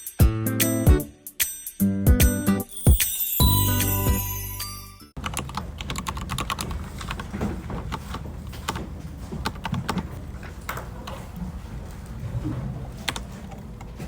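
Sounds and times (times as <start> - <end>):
music: 0.0 - 5.2
keyboard typing clicks: 5.2 - 10.1.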